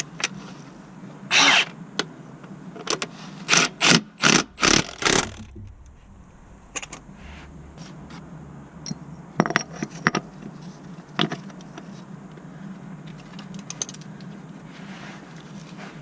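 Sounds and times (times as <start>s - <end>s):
steady low hum: 3.5s - 16.0s.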